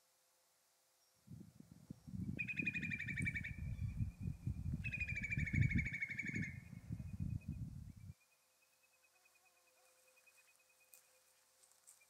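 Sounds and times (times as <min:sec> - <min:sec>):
songbird singing trilled phrases: 0:02.0 - 0:08.4.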